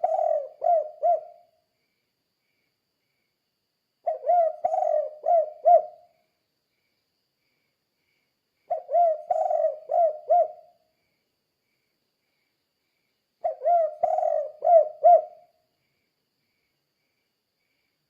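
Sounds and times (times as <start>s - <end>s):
dove cooing: 0.0s - 1.5s, 4.0s - 6.0s, 8.7s - 10.7s, 13.4s - 15.5s.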